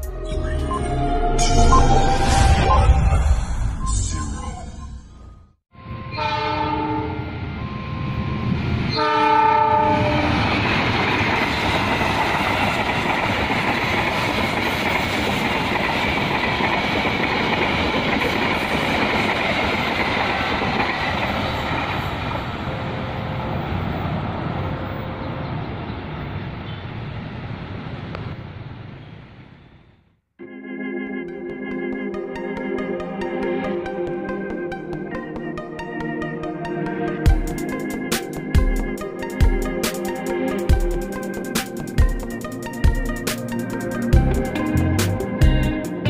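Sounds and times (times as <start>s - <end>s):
train horn blasts: 5.8s - 7.5s, 8.9s - 10.5s
train wheel and rail noise: 5.8s - 29.5s, 37.3s - 46.0s.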